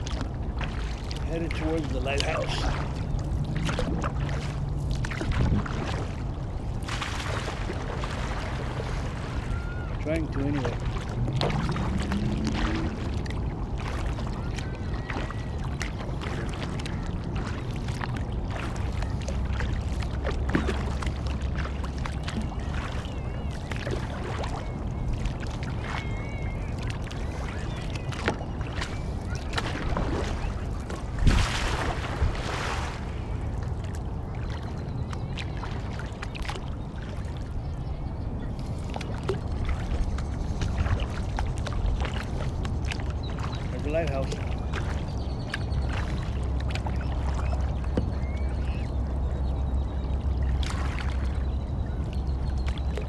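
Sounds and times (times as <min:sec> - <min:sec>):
paddle splashing in water: 0:00.0 - 0:37.6, 0:38.5 - 0:49.4, 0:50.2 - 0:53.0
water lapping against hull: 0:00.0 - 0:53.0
wind rumbling on microphone: 0:00.0 - 0:53.0
faint bird calls: 0:08.3 - 0:11.1, 0:22.0 - 0:30.9, 0:32.9 - 0:53.0.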